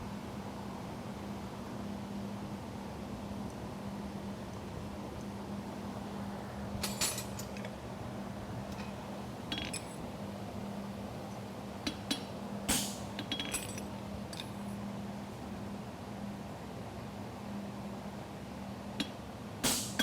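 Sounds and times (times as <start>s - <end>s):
hammer clinking on anvil: 8.8s - 10.0s, 12.1s - 14.6s.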